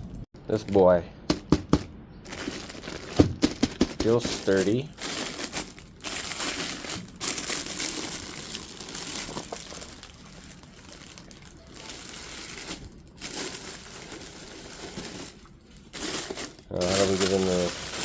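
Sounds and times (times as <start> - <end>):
packaging crinkling and rustling: 2.2 - 18.0.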